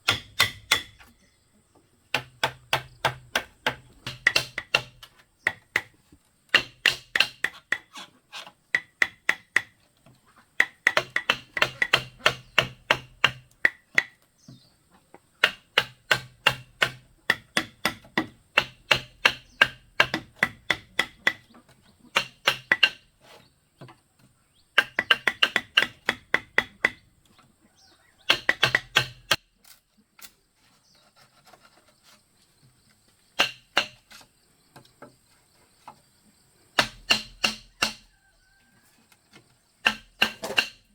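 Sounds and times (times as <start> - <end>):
tool knocking on bamboo: 0.0 - 1.1, 2.1 - 8.0, 8.7 - 9.8, 10.6 - 14.6, 15.4 - 23.1, 24.8 - 27.0, 28.2 - 29.4, 33.4 - 34.1, 36.8 - 38.1, 39.8 - 40.9.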